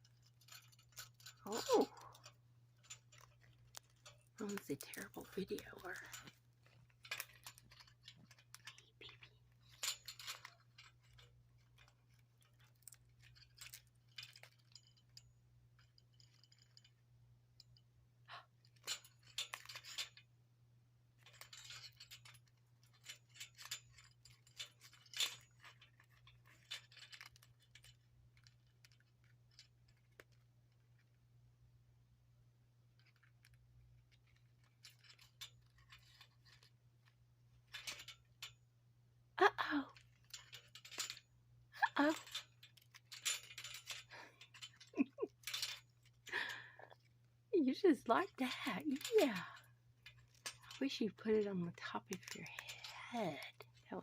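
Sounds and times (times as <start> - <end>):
parakeet chewing and crunching: 0.0 - 19.9, 21.4 - 38.4, 49.4 - 54.0.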